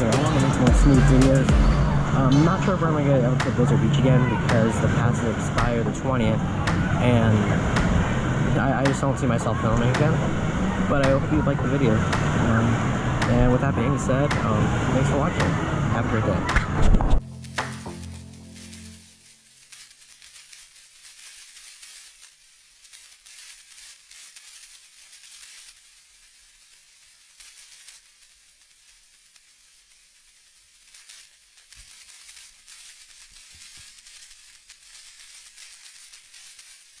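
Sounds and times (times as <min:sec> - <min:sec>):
low tone: 0:00.0 - 0:04.7, 0:17.2 - 0:19.3
faint crackling hiss: 0:17.2 - 0:37.0.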